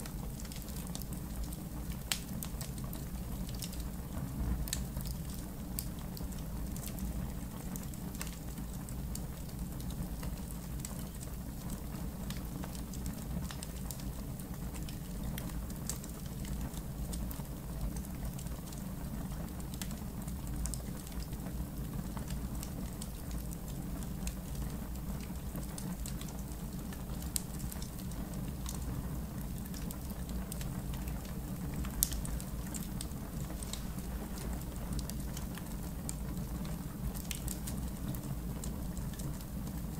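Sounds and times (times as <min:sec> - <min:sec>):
low rumble of fire: 0:00.0 - 0:39.9
wood fire crackling and popping: 0:00.0 - 0:39.9.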